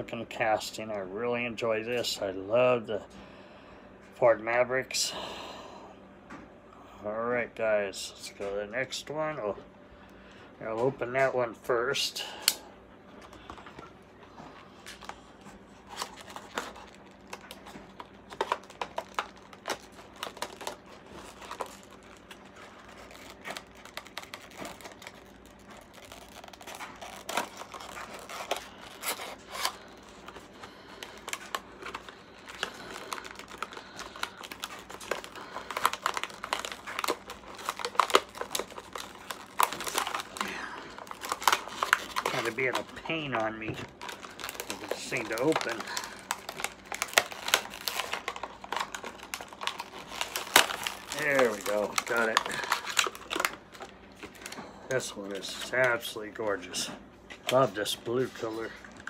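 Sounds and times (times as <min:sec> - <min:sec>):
packaging crinkling and tearing: 0:13.2 - 0:56.7.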